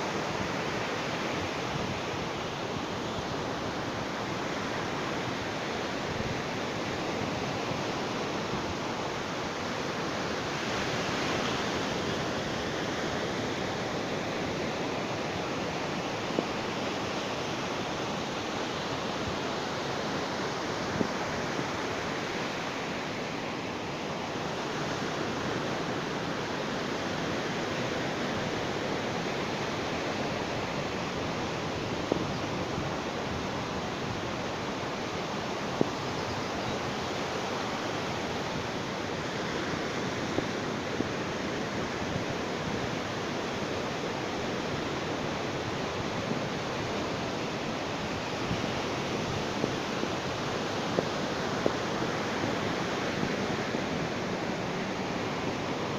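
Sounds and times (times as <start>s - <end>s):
sea waves washing on beach: 0.0s - 55.9s.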